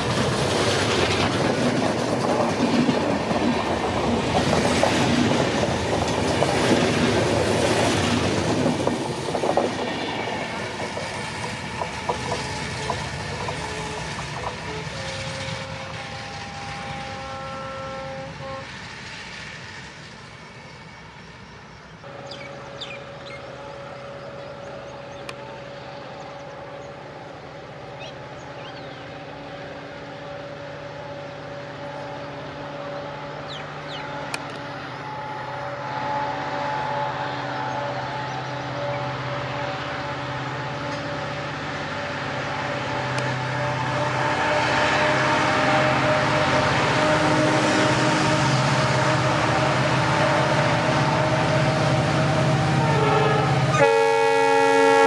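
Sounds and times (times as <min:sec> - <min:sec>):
train wheels clattering over rail joints: 0:00.0 - 0:17.1
diesel locomotive engine drone: 0:00.0 - 0:55.0
bird chirps: 0:22.2 - 0:23.5.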